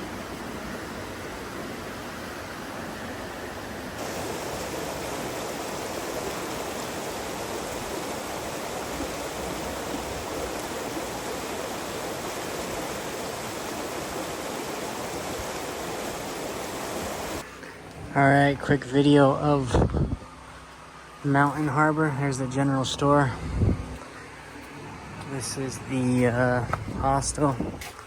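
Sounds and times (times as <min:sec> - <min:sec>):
running water rushing: 0:00.0 - 0:17.7.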